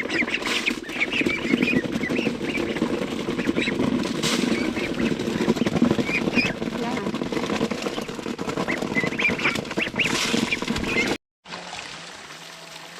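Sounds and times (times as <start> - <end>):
ducks and chickens calling: 0.0 - 6.8, 7.6 - 11.2.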